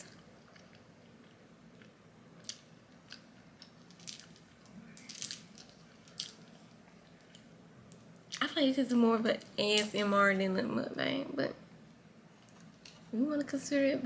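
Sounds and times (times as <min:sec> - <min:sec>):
faint chewing: 0:00.0 - 0:08.4.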